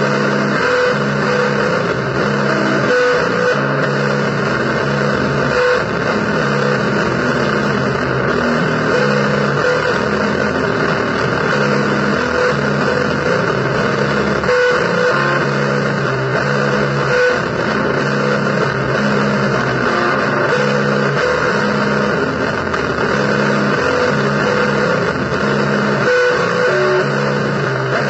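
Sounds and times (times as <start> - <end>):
distorted electric guitar blues riff: 0.0 - 28.0
thick wash of noise: 3.8 - 14.5.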